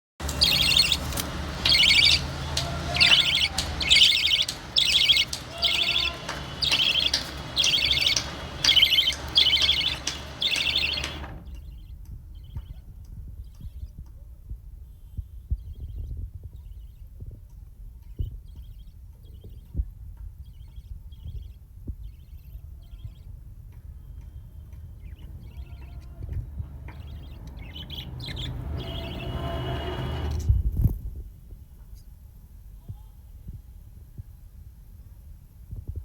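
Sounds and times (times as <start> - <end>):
budgerigar chirping: 0.3 - 12.8, 26.8 - 30.1.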